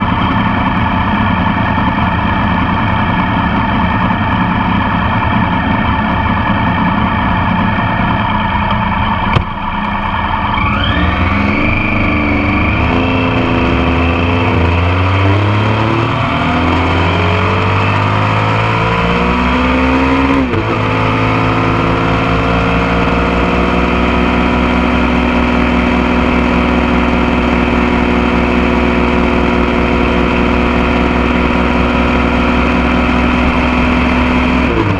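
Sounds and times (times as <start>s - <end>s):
motorcycle engine: 0.0s - 34.9s.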